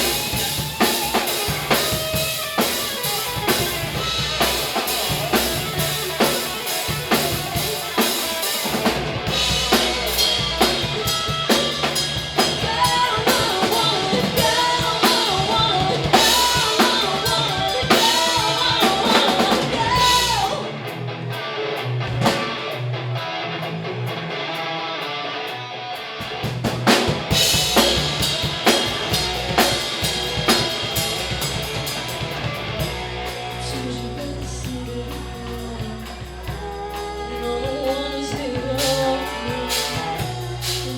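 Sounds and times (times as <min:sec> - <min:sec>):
live band playing: 0:00.0 - 0:23.5, 0:26.0 - 0:40.9
drum kit: 0:00.0 - 0:25.0, 0:25.9 - 0:40.9
bass: 0:00.0 - 0:40.9
guitar: 0:00.0 - 0:40.9.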